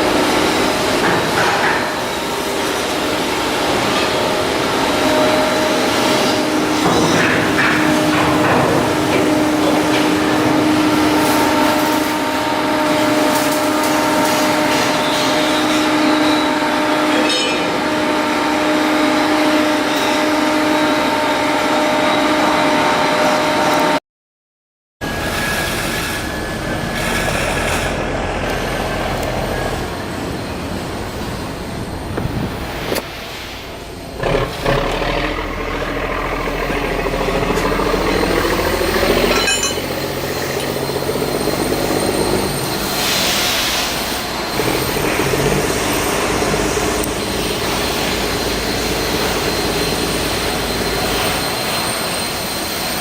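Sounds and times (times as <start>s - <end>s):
machinery humming and clattering: 0.0s - 24.0s, 25.0s - 53.0s
machine with thin high tone: 34.0s - 53.0s.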